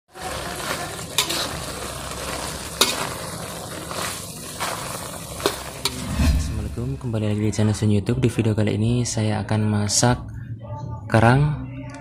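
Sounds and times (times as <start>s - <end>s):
mussels sizzling in a wok: 0.1s - 6.4s.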